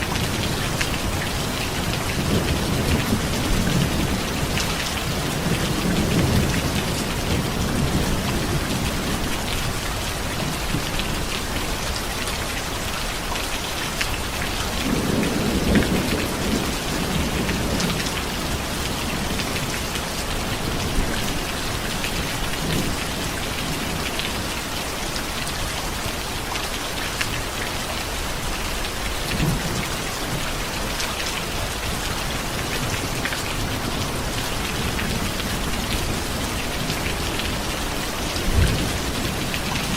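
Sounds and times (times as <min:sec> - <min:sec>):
steady rain: 0:00.0 - 0:39.9
thunder rumbling: 0:14.7 - 0:24.5, 0:31.7 - 0:39.9.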